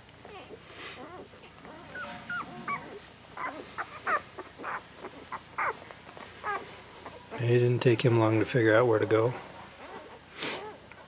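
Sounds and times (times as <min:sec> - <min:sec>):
puppies squealing and whimpering: 0:00.2 - 0:07.5, 0:09.6 - 0:10.9.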